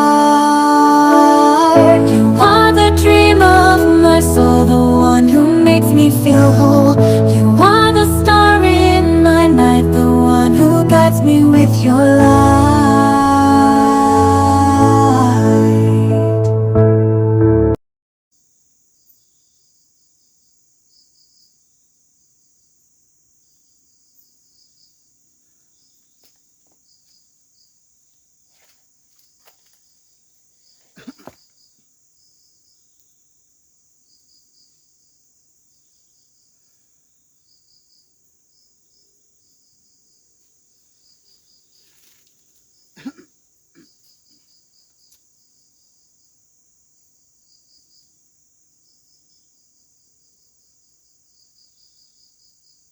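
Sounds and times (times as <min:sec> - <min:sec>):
forest insects trilling: 0:18.4 - 0:52.9.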